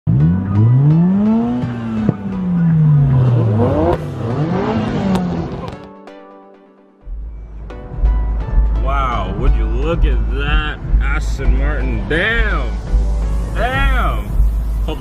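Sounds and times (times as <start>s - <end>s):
car engine revving: 0.1s - 5.9s.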